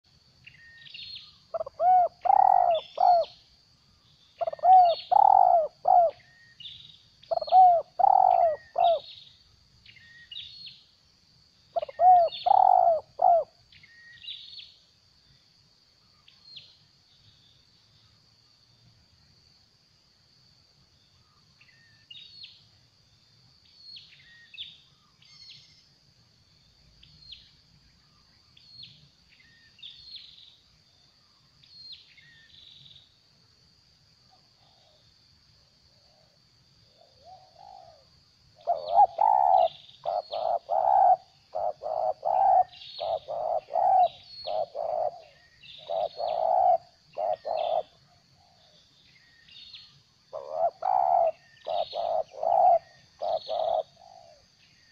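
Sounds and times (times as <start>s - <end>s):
small birds chirping: 0.1s - 11.0s, 11.7s - 15.4s, 36.0s - 54.9s
dove cooing: 1.5s - 3.4s, 4.4s - 6.3s, 7.3s - 9.1s, 11.8s - 13.6s, 37.0s - 48.8s, 50.3s - 54.4s.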